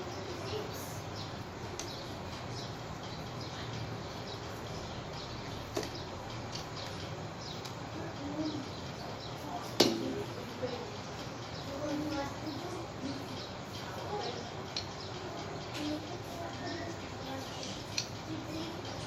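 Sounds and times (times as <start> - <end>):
small birds chirping: 0.0 - 19.0
steady background hum: 0.0 - 19.0.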